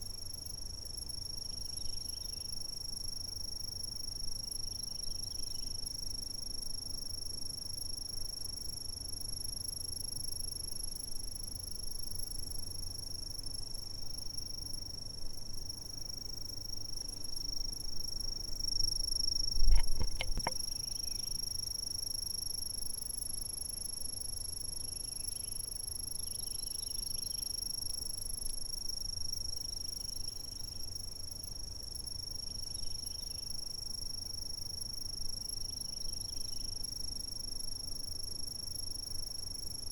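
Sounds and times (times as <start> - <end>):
insects trilling: 0.1 - 39.9
low thump with clicks: 19.6 - 20.6.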